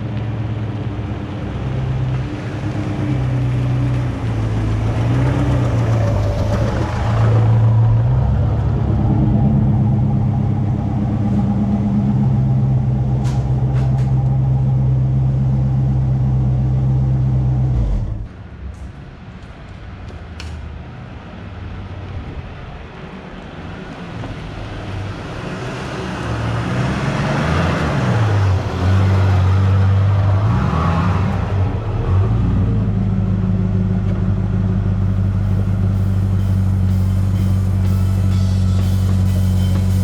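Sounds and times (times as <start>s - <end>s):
car engine revving: 1.2s - 18.3s, 25.4s - 40.0s.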